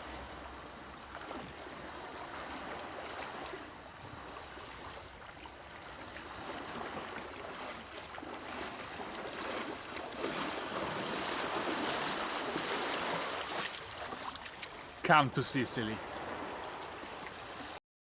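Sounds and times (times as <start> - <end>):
water rushing: 4.6 - 17.8.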